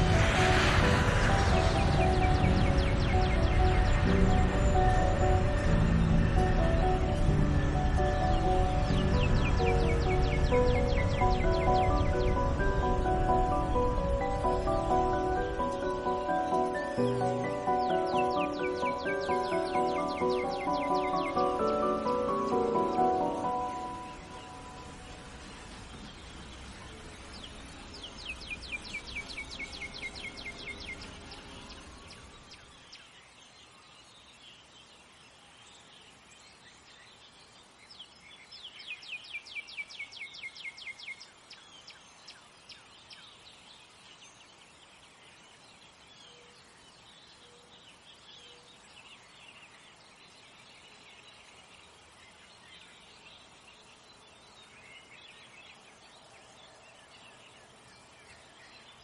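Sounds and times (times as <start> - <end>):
low music: 0.0 - 27.2
faint outdoor background: 0.0 - 59.0
songbird trills: 0.0 - 59.0.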